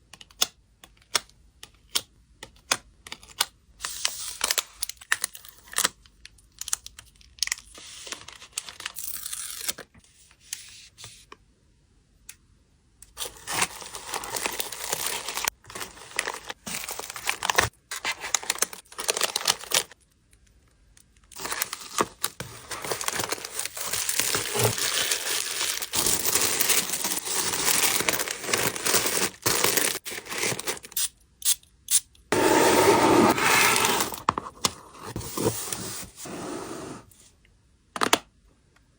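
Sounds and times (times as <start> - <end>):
plastic and paper crinkling: 13.2 - 20.0, 21.2 - 31.0.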